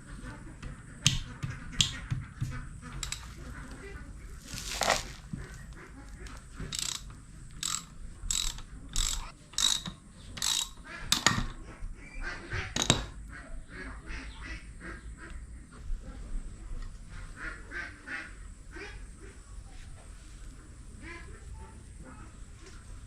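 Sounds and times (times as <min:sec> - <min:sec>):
ratchet wrench ratcheting: 0:03.0 - 0:03.3, 0:06.6 - 0:11.4.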